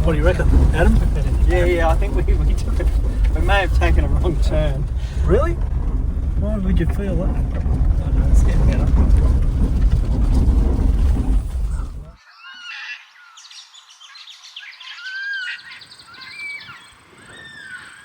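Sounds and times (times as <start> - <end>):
vehicle driving rumble: 0.0 - 12.2
birds whistling calls: 11.6 - 18.0.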